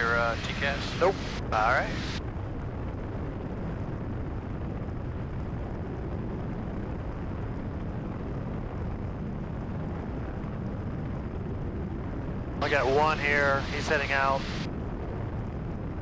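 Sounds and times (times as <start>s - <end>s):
propeller plane engine droning: 0.0s - 16.0s.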